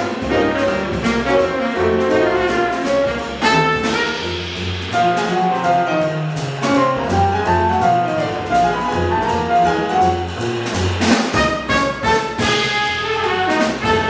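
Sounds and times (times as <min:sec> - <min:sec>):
horns playing melody: 0:00.0 - 0:04.5, 0:11.3 - 0:14.0
jazz band playing: 0:00.0 - 0:14.0
walking double bass: 0:00.0 - 0:14.0.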